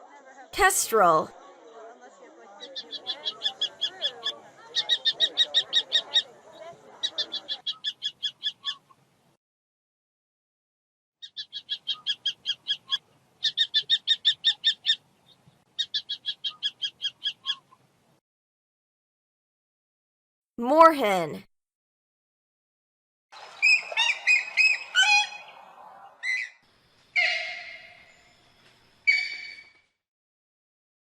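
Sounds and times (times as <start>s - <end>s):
kestrel calling: 2.7s - 6.3s, 7.0s - 9.0s, 11.2s - 15.0s, 15.8s - 17.8s, 23.6s - 25.5s, 26.2s - 29.8s.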